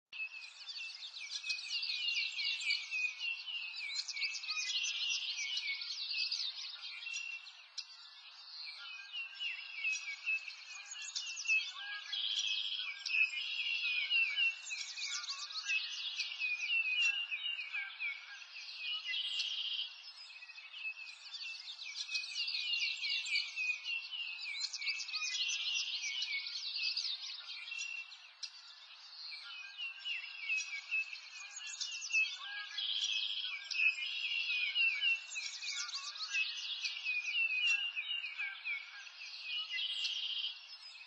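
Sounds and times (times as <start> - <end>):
songbirds chirping and trilling: 0.0 - 41.0.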